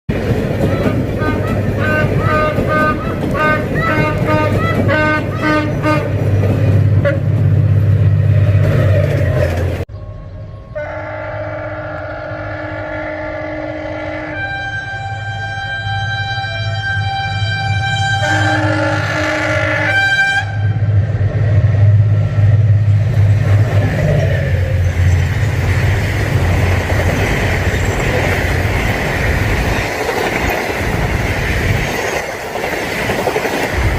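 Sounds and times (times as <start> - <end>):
diesel locomotive engine rumble: 0.1 - 33.9
short pitched train toots: 10.0 - 20.8
long chord-like horn blast: 10.1 - 20.8.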